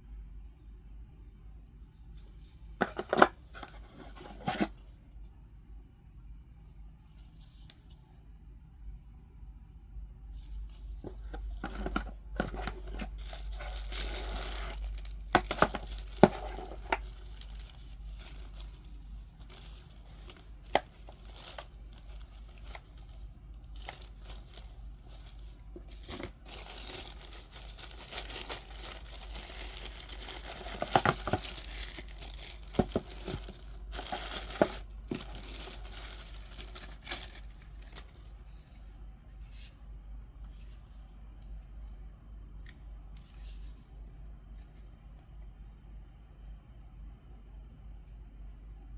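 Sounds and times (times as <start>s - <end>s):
packaging torn and crinkled: 12.8s - 38.0s.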